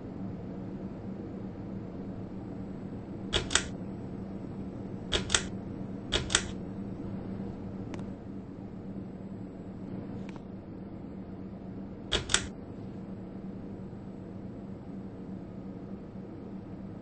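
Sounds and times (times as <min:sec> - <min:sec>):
ceiling fan humming: 0:00.0 - 0:17.0
sharp double clicks: 0:03.4 - 0:03.8, 0:05.1 - 0:05.5, 0:06.2 - 0:06.6, 0:12.1 - 0:12.5.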